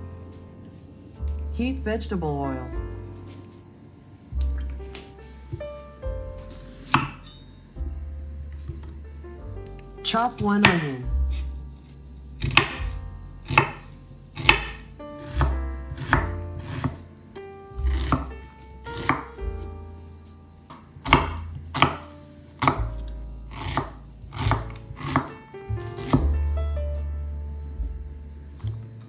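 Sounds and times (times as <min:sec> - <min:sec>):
background music with bass: 0:00.0 - 0:29.0
knife chopping on cutting board: 0:06.5 - 0:07.2, 0:10.3 - 0:11.5, 0:12.4 - 0:17.1, 0:17.8 - 0:18.3, 0:18.9 - 0:19.4, 0:20.7 - 0:26.3.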